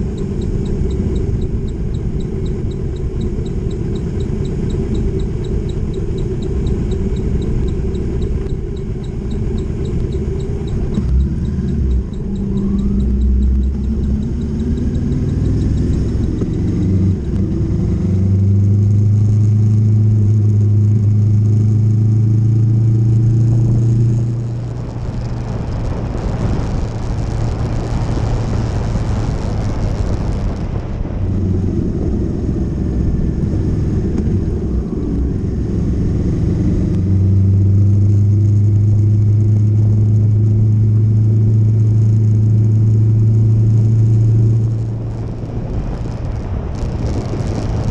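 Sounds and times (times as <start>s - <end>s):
motorcycle engine running: 0.0s - 47.9s
rushing noise: 23.2s - 37.2s, 44.2s - 47.9s.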